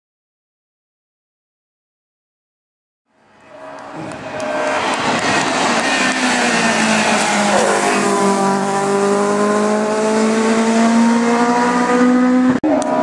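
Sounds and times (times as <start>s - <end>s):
racing car engine accelerating: 3.3s - 13.0s.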